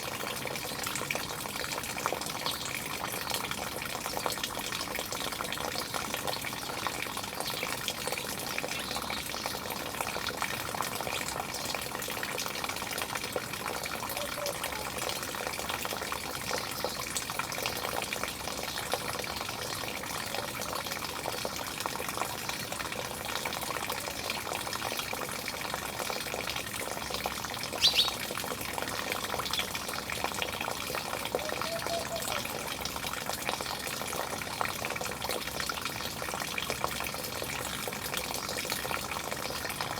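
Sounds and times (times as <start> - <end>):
running water rushing: 0.0 - 39.9
sharp animal call: 31.3 - 32.5.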